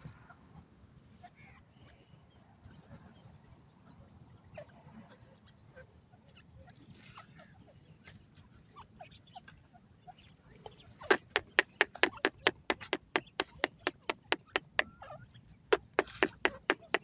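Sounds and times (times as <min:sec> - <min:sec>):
bird giving sharp clicking notes: 0:11.1 - 0:14.9, 0:15.7 - 0:17.0.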